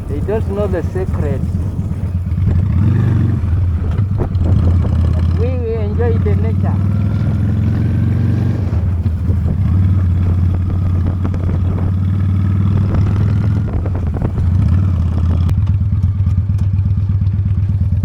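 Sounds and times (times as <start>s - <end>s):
wind noise on microphone: 0.0s - 15.5s
motorcycle engine running: 0.0s - 18.0s.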